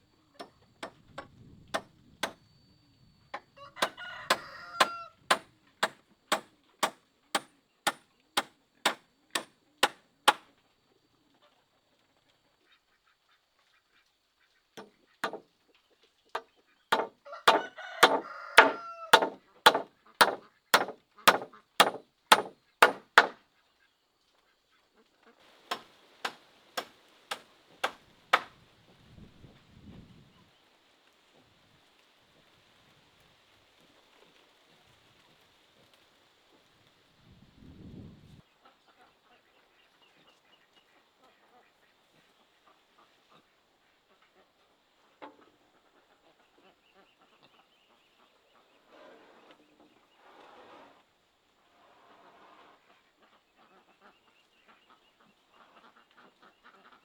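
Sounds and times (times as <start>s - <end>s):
rooster crowing: 3.6s - 5.4s, 17.0s - 19.8s
sharp rhythmic knocks: 3.8s - 8.0s, 14.8s - 15.4s, 16.9s - 23.4s.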